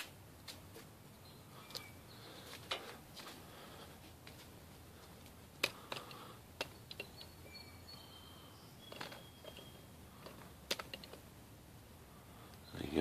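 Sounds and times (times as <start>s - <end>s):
metal tools clicking and knocking: 5.6s - 7.3s, 8.9s - 11.2s
faint high squeaks: 7.0s - 9.9s.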